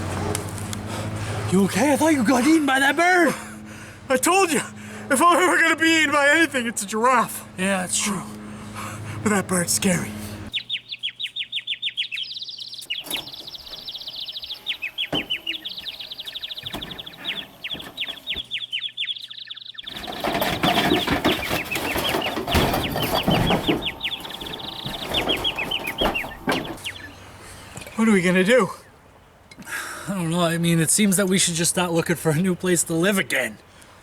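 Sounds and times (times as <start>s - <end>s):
bird chirping: 9.4s - 29.5s.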